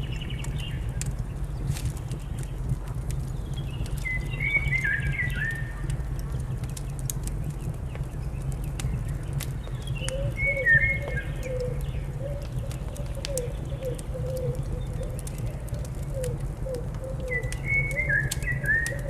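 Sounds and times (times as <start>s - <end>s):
fire crackling with pops: 0.0s - 19.0s
bird twittering: 9.8s - 15.2s, 16.1s - 19.0s
low wavering cooing call: 10.1s - 19.0s.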